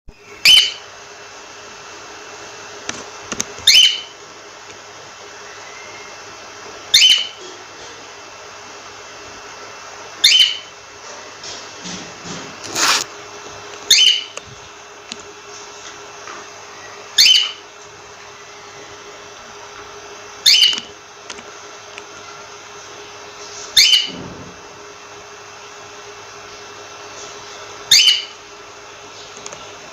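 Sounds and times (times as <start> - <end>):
steady low hum: 0.1 - 29.9
cockatiel calling: 0.4 - 0.8, 3.6 - 4.1, 6.9 - 7.4, 10.2 - 10.7, 13.9 - 14.4, 17.1 - 17.6, 20.4 - 20.9, 23.8 - 24.2, 27.9 - 28.4.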